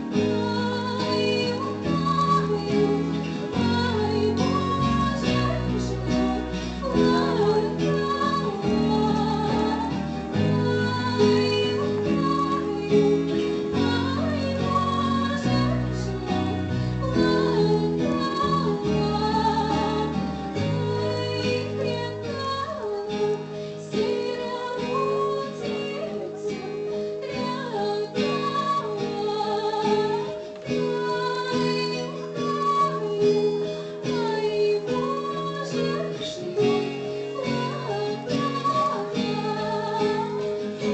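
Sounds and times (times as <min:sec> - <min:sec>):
instrumental accompaniment with bass: 0:00.0 - 0:27.2
woman singing slow melody: 0:00.0 - 0:40.9.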